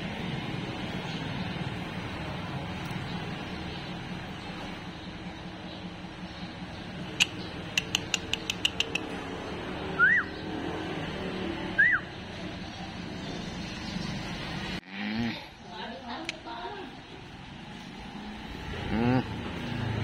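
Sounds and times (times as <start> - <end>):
bird-like chirps: 2.9 - 9.2.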